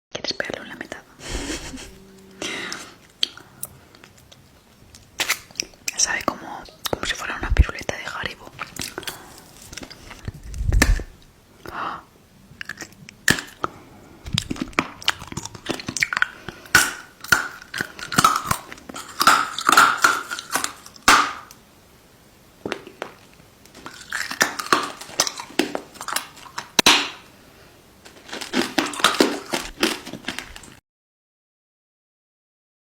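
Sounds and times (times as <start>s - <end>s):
chewing and crunching food: 2.5s - 7.1s, 8.5s - 11.0s, 12.5s - 21.6s, 22.6s - 27.4s, 28.0s - 30.8s.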